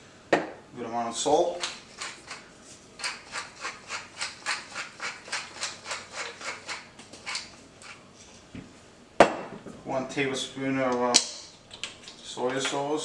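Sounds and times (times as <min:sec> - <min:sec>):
salt shaker shaking: 0:01.6 - 0:02.4, 0:03.0 - 0:08.0.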